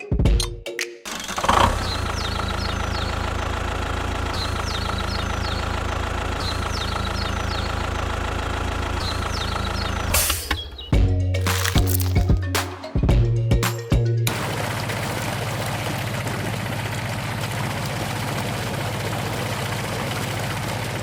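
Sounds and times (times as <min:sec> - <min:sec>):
engine idling: 0:01.2 - 0:10.2, 0:14.3 - 0:21.0.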